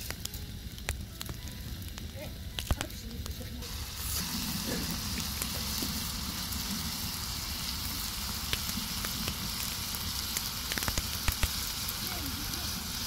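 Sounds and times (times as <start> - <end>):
vegetables sizzling in oil: 0.0 - 13.0
small oil pops: 2.6 - 2.9, 10.3 - 11.6.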